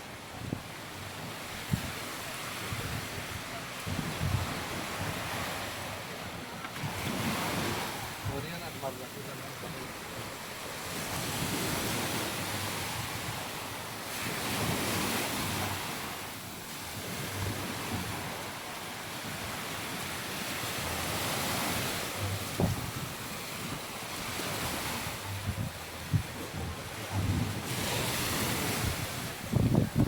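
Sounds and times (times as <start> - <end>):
sea waves washing onto beach: 0.0 - 30.0
wind buffeting microphone: 0.3 - 5.9, 22.2 - 30.0.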